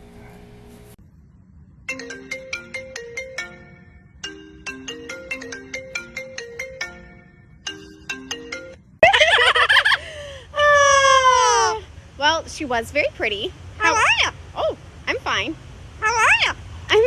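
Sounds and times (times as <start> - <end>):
phone ringtone marimba melody: 1.9 - 8.8.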